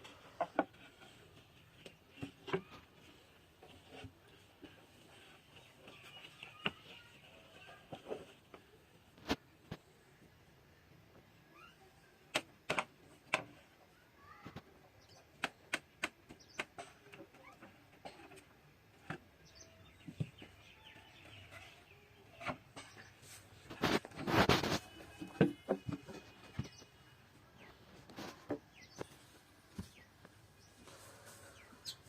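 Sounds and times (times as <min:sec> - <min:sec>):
birds chirping faintly: 0:00.0 - 0:12.3, 0:13.3 - 0:32.0
rasping scraping noise: 0:22.8 - 0:25.3.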